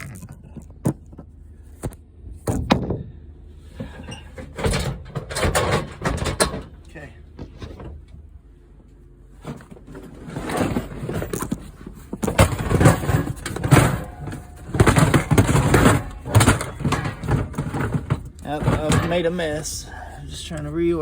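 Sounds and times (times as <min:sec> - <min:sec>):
tool boxes scraping and clunking: 0:03.7 - 0:06.8, 0:09.3 - 0:21.0.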